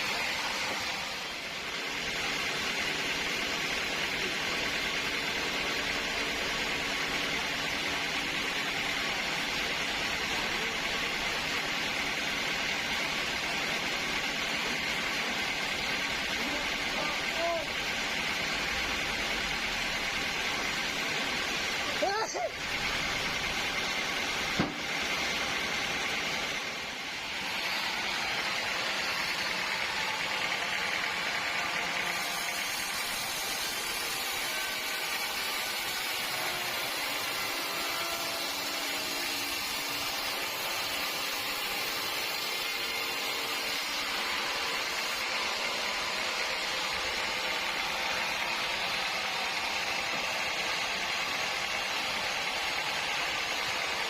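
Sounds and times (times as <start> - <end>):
sawmill machinery hissing: 0.0 - 54.0
short knock: 24.6 - 24.8.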